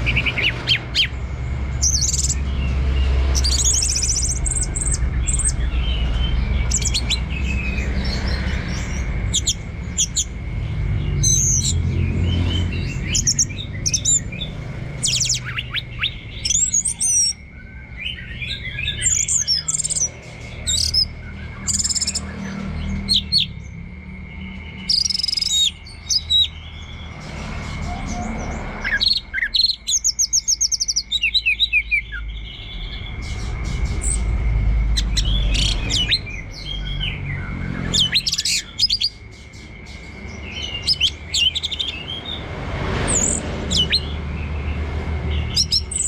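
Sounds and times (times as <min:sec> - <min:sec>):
thrush singing whistled phrases: 0:00.0 - 0:01.2, 0:01.8 - 0:10.4, 0:11.1 - 0:23.6, 0:24.7 - 0:27.1, 0:35.0 - 0:42.4, 0:43.1 - 0:44.2, 0:45.3 - 0:46.0
steady low rumble: 0:00.0 - 0:24.8, 0:31.0 - 0:46.0.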